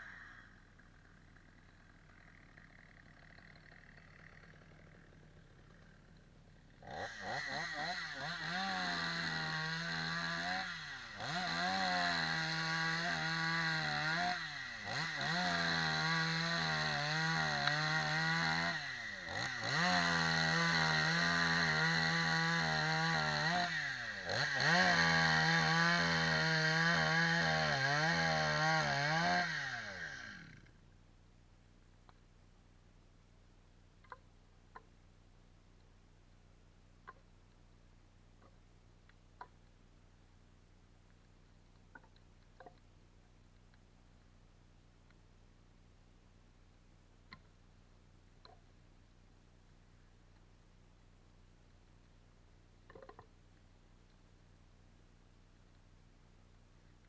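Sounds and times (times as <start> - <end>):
chainsaw revving: 0.0 - 30.7.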